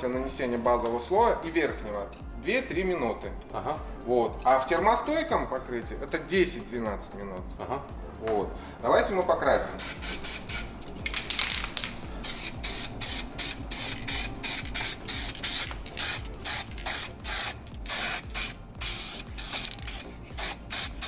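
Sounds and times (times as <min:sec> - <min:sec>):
aerosol spray can hissing: 0:09.7 - 0:21.0.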